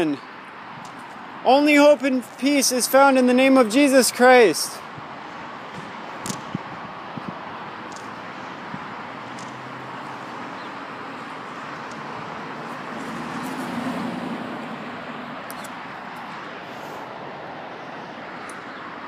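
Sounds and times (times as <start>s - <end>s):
street traffic: 0.0s - 19.0s
vehicle passing: 4.9s - 19.0s.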